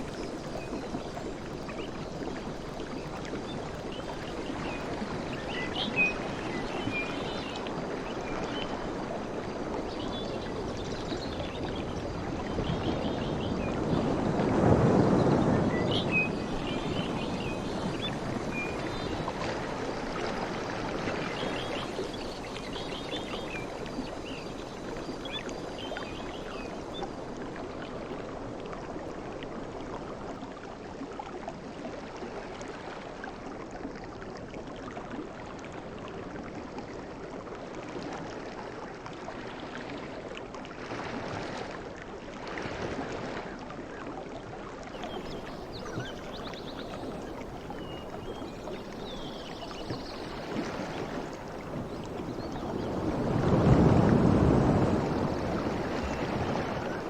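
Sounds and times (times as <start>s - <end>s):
sea waves washing in: 0.0s - 28.6s, 45.0s - 57.0s.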